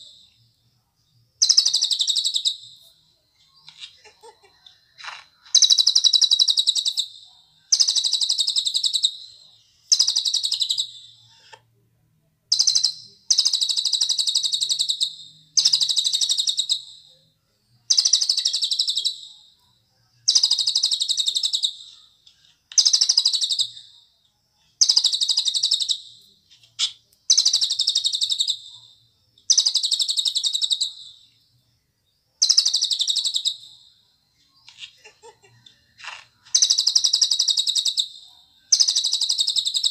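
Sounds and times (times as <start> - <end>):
songbird trilling: 1.4 - 2.8, 22.7 - 23.9, 29.5 - 31.3, 32.4 - 33.7, 36.0 - 39.9.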